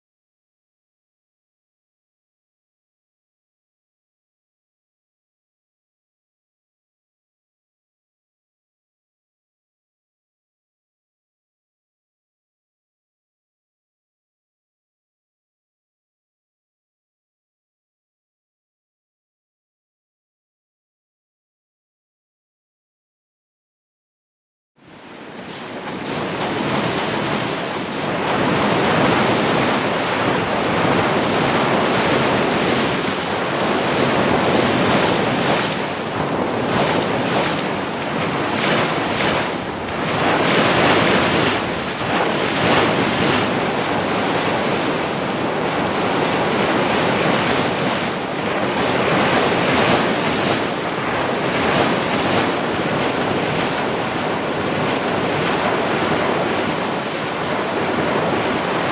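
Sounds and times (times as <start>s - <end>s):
ocean waves breaking: 24.8s - 58.9s
wind on microphone: 24.9s - 58.9s.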